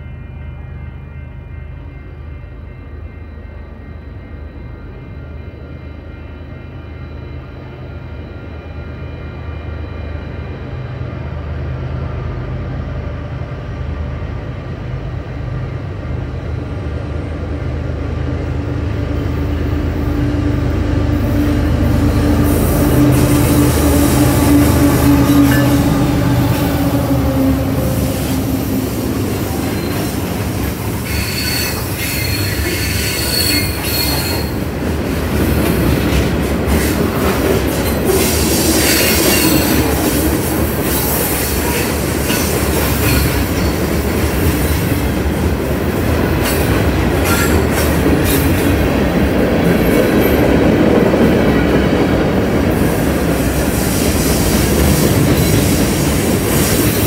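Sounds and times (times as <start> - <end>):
diesel locomotive engine drone: 0.0 - 57.0
steel wheels squealing on rail: 19.3 - 34.9, 35.5 - 45.2, 46.3 - 50.6, 51.3 - 57.0.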